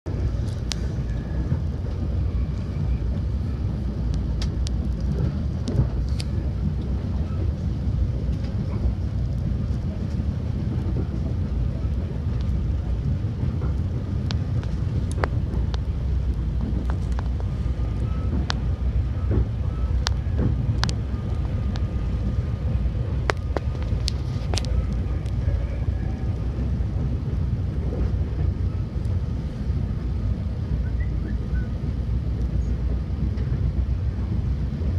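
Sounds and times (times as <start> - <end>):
train rumbling on rails: 0.1 - 34.9
sharp clicks and creaks: 13.4 - 22.4, 23.1 - 25.6.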